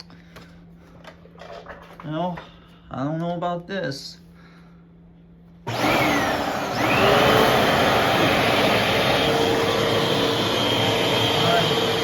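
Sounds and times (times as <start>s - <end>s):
vacuum cleaner motor running: 5.7s - 12.0s.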